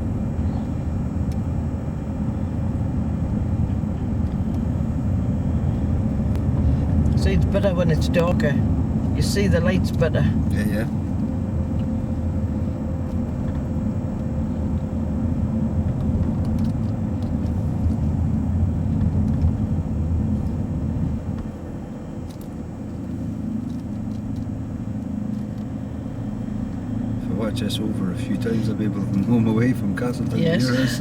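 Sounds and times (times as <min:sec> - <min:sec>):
engine and road rumble in cabin: 0:00.0 - 0:31.0.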